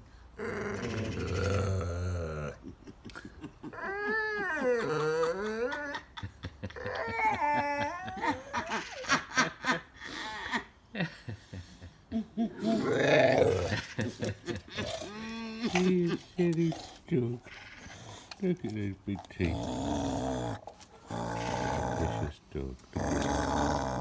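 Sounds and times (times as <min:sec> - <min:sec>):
dog groaning and whining: 0:00.4 - 0:02.6, 0:03.6 - 0:06.1, 0:06.8 - 0:08.8, 0:12.6 - 0:24.0
dog growling: 0:00.4 - 0:02.6, 0:12.6 - 0:24.0
dog snorting: 0:12.6 - 0:24.0.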